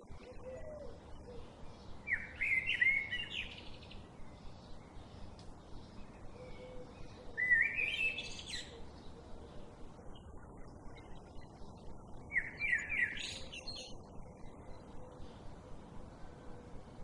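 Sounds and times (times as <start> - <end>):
bird chirping: 0.0 - 15.5
faint outdoor background noise: 0.0 - 17.0.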